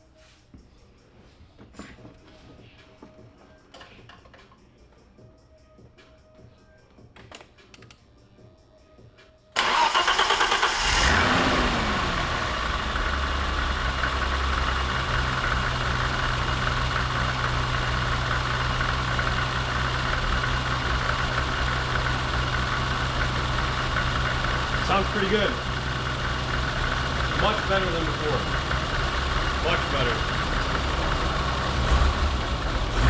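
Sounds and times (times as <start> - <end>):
car engine starting and idling: 9.6 - 33.0.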